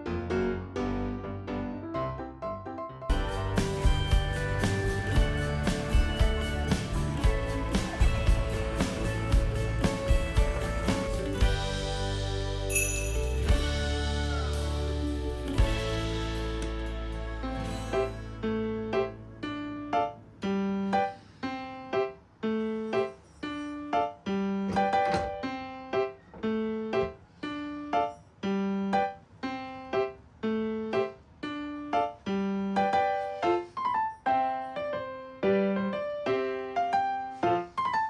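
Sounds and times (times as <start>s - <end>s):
gentle piano tune: 0.0s - 38.0s
repeating bass line: 3.1s - 18.7s.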